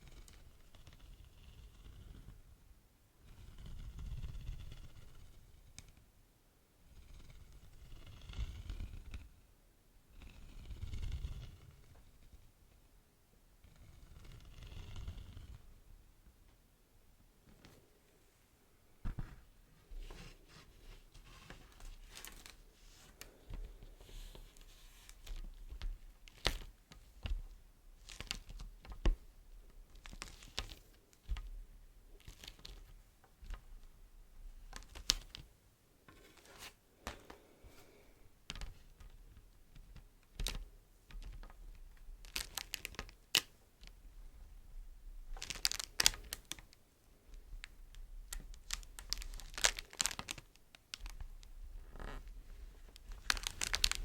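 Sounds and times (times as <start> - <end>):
wax wrap crinkling: 21.0 - 26.8, 27.9 - 29.1, 29.8 - 33.0, 34.6 - 35.4, 40.3 - 44.0, 45.3 - 54.0.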